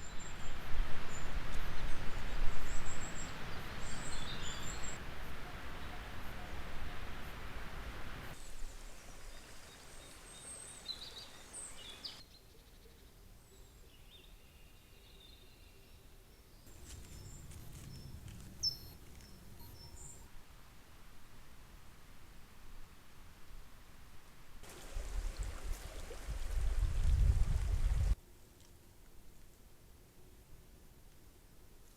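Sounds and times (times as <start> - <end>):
steady hiss: 0.0 - 12.2, 16.7 - 28.2
high bird chirps: 17.0 - 20.3.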